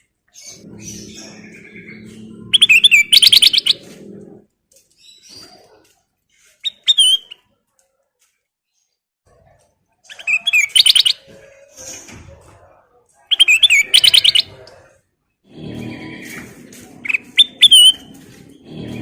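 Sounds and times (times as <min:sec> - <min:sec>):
bulbul singing: 0:00.3 - 0:04.2, 0:10.1 - 0:11.3, 0:13.3 - 0:14.5.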